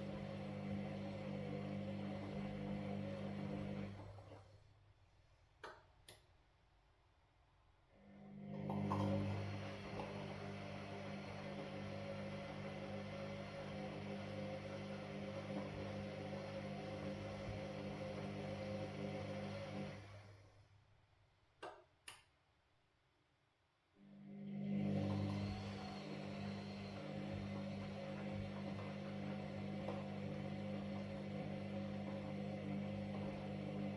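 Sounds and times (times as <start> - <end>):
washing machine motor humming: 0.0 - 4.6, 8.4 - 20.5, 24.2 - 33.9.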